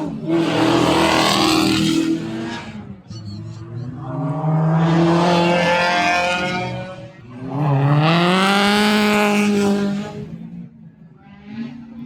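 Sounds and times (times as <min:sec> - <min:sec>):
car engine revving hard: 0:04.3 - 0:10.3.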